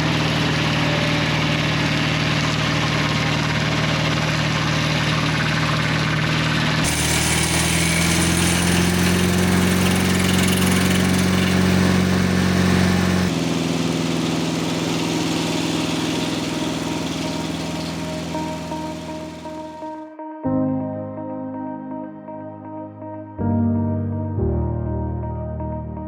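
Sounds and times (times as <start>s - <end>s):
sawmill engine running: 0.0s - 20.0s.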